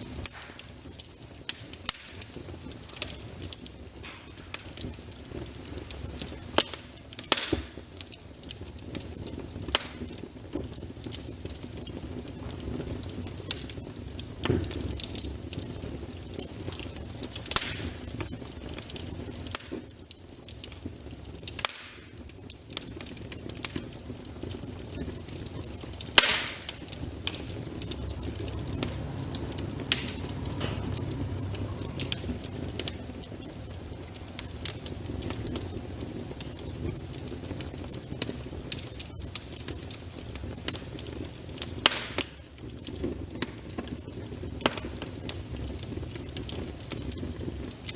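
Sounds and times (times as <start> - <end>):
low rush of flames: 0.0 - 47.9
wood fire pops and snaps: 0.0 - 47.9.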